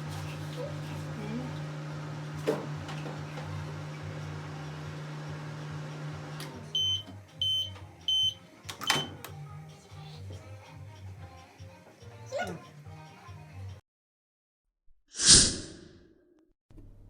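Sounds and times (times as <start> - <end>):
microwave oven humming: 0.0 - 9.7.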